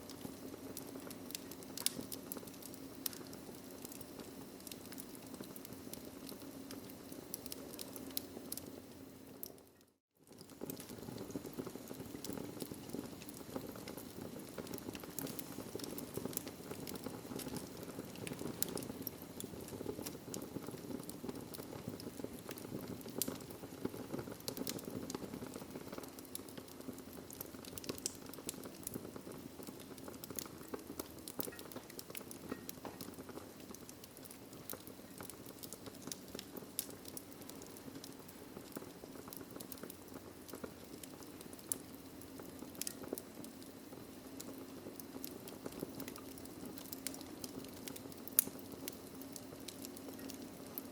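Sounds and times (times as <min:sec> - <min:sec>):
sharp pops and snaps of fire: 0:00.0 - 0:50.9
wood fire crackling: 0:00.0 - 0:50.9.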